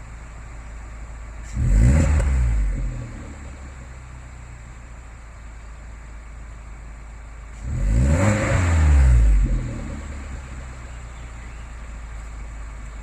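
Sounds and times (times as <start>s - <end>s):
car engine idling: 0.0s - 13.0s
car engine revving: 1.4s - 4.1s, 7.5s - 11.0s.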